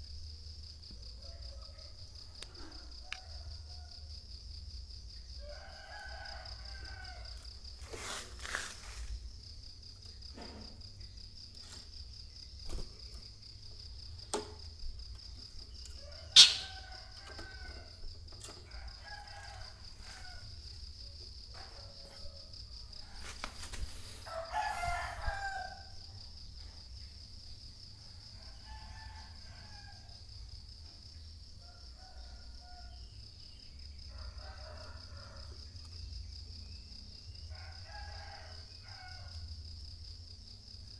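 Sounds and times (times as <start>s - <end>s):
roosters crowing: 5.4s - 9.0s, 15.7s - 20.8s, 21.6s - 26.1s, 28.3s - 30.3s, 34.1s - 35.7s, 37.5s - 39.5s.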